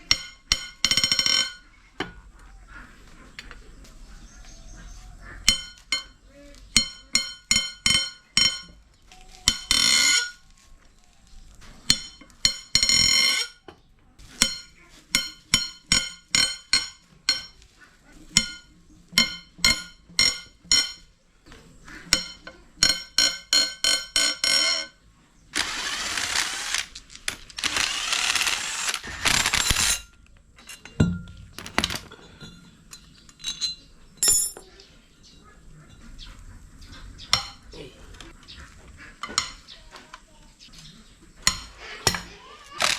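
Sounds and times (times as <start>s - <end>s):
hand tools tapping metal: 0.0s - 2.1s, 14.4s - 17.7s, 31.6s - 32.1s.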